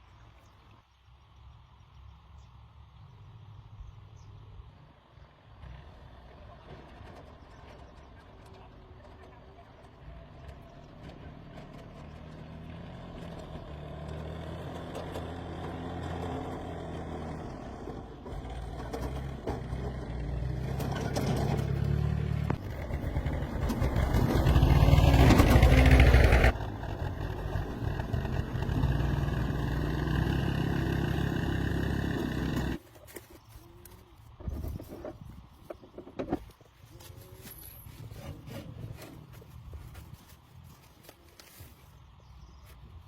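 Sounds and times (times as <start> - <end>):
vehicle engine running: 5.2 - 35.9.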